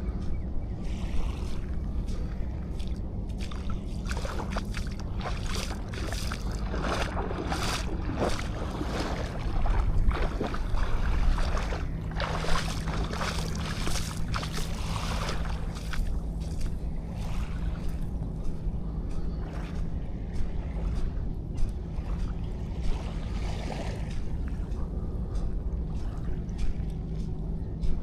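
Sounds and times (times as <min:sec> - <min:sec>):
faint low hum: 0:00.0 - 0:28.0
wind rumbling on microphone: 0:00.0 - 0:28.0
waves breaking on shore: 0:00.8 - 0:18.6.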